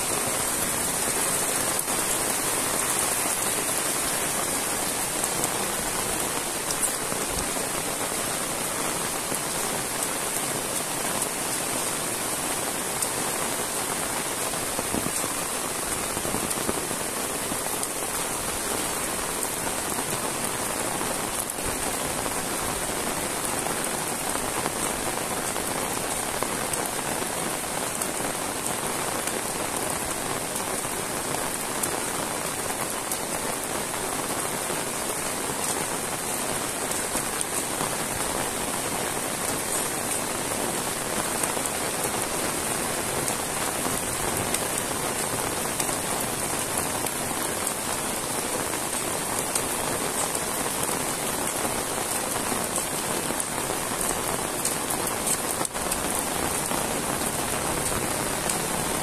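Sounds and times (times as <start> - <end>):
heavy rain on a road: 0.0 - 59.0.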